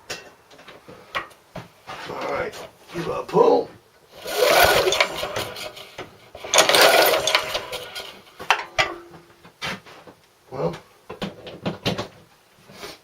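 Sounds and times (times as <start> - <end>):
engine turning over without firing: 4.1 - 8.3
recoil starter rope rasping: 4.1 - 8.4.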